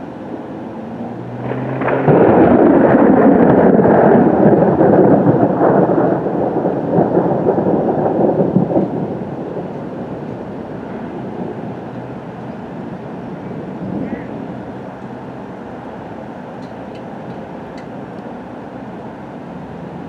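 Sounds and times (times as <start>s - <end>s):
thunder crack and rumble: 0.3s - 15.0s.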